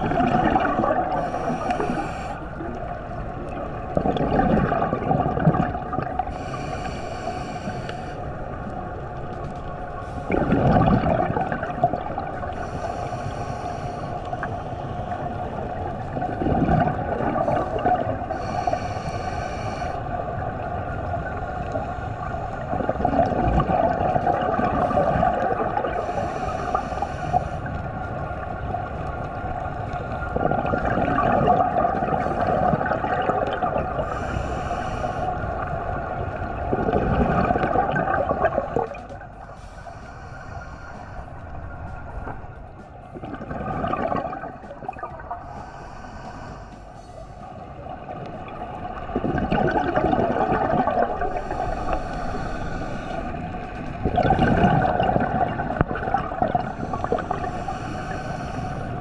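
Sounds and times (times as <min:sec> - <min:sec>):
gurgling exhaled bubbles: 0:00.0 - 0:06.9, 0:07.5 - 0:13.2, 0:15.2 - 0:27.2, 0:29.5 - 0:35.0, 0:35.6 - 0:39.3, 0:43.1 - 0:46.2, 0:47.8 - 0:59.0
diver breathing through regulator: 0:00.4 - 0:02.7, 0:06.1 - 0:08.5, 0:12.4 - 0:15.1, 0:16.8 - 0:20.1, 0:24.5 - 0:27.8, 0:31.6 - 0:35.8, 0:37.4 - 0:41.8, 0:44.1 - 0:47.8, 0:49.8 - 0:53.7, 0:54.6 - 0:59.0.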